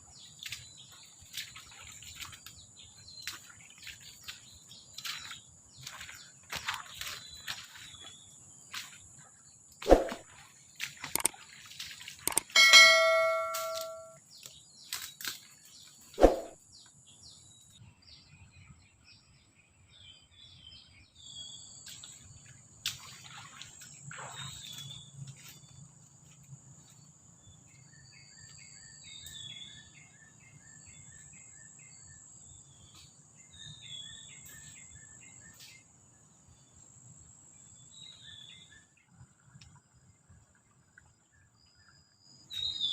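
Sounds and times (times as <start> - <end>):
bird chirps: 12.3 - 15.1, 41.7 - 42.9
ringing metal clang: 12.4 - 14.2.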